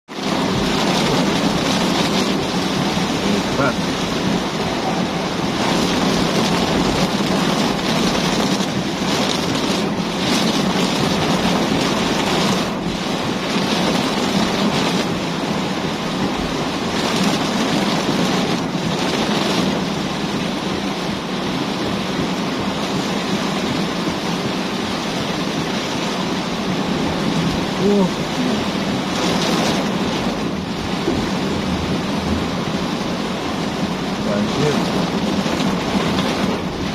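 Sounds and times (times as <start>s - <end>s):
heavy rain falling: 0.1s - 36.9s.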